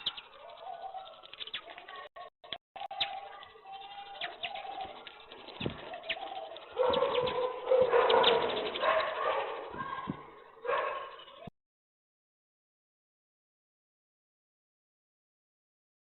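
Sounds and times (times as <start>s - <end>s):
pigeons cooing: 3.9s - 9.7s.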